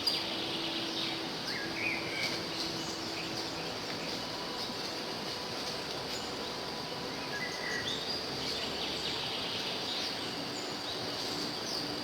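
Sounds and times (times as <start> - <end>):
outdoor hiss with insects: 0.0 - 12.0.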